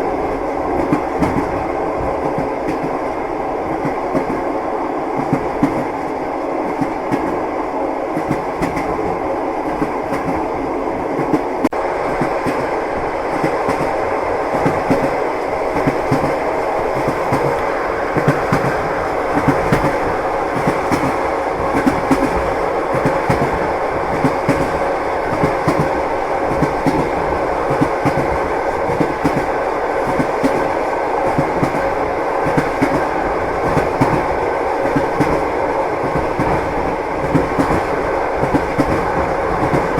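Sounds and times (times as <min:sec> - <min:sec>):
train rumble: 0:00.0 - 0:39.9
wheels clacking over rail joints: 0:14.5 - 0:39.9.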